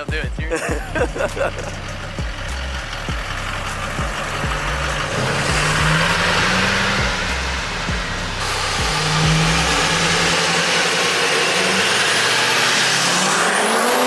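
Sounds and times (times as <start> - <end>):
diesel pickup engine revving: 0.0 - 14.0
loud rushing noise: 3.8 - 14.0.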